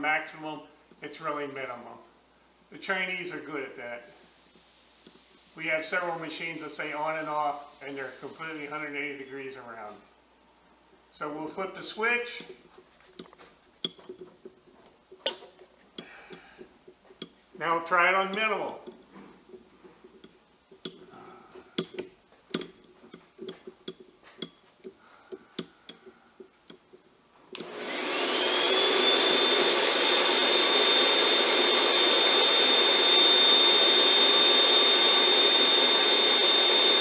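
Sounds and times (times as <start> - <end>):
snow machine blower whine: 27.6 - 37.0.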